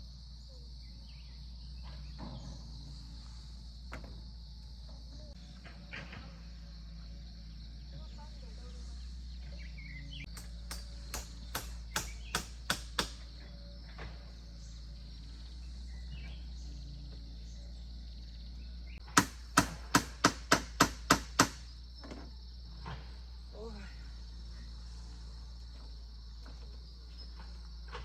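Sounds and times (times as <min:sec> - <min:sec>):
high insect buzz: 0:00.0 - 0:28.0
sharp striking blows: 0:10.4 - 0:13.2, 0:19.1 - 0:21.6.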